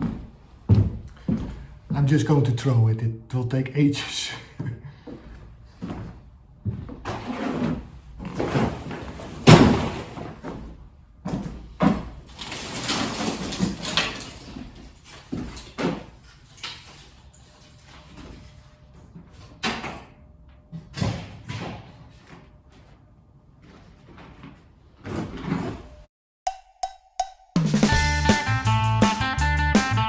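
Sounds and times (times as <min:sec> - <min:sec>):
wood pieces thudding and clattering: 0:06.7 - 0:17.1.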